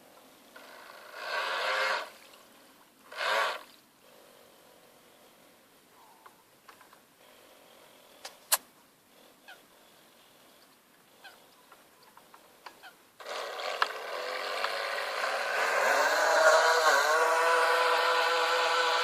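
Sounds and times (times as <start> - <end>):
electric motor whining: 13.2 - 19.0.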